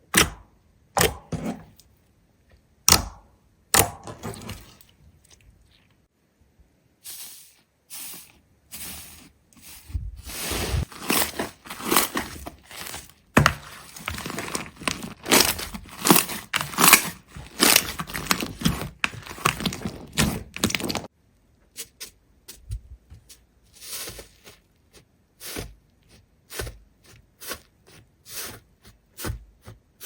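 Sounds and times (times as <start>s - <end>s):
material crinkling and crunching: 8.8s - 21.1s.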